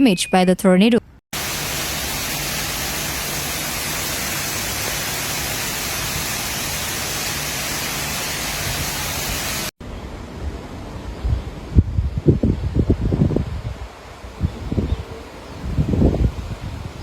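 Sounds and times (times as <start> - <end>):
heavy rain hiss: 1.4 - 9.8
gusty wind noise: 8.3 - 17.0.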